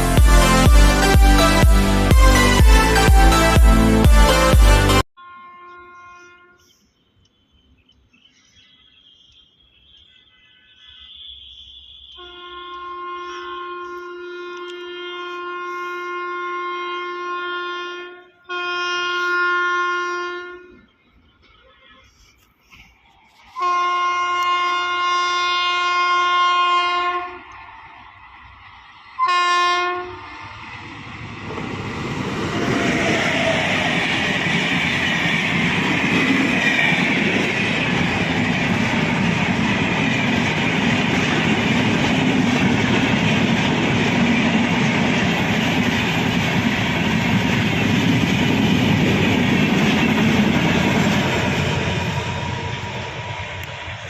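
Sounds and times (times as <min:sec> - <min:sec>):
locomotive horn blasts: 0:00.0 - 0:06.8, 0:12.1 - 0:20.8, 0:23.5 - 0:27.5, 0:29.2 - 0:30.4
train passing at full speed: 0:00.0 - 0:07.0, 0:07.6 - 0:54.0.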